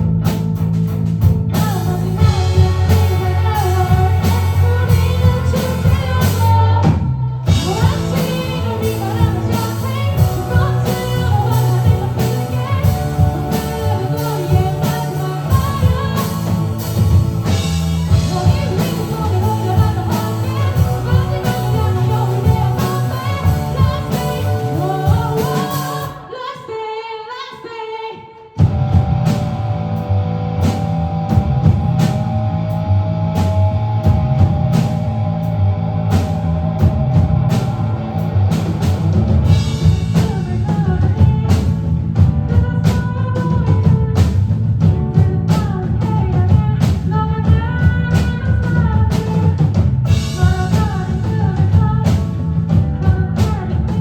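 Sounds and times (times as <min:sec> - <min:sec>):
live rock band playing: 0:00.0 - 0:26.3, 0:28.6 - 0:54.0
lead singer singing: 0:01.5 - 0:28.6, 0:39.5 - 0:54.0.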